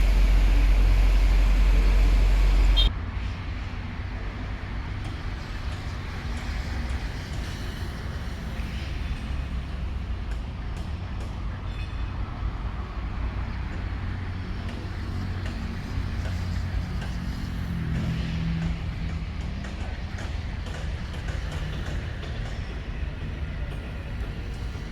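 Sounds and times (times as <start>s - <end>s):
low hum: 0.0s - 2.9s
train rumble inside carriage: 0.0s - 24.9s.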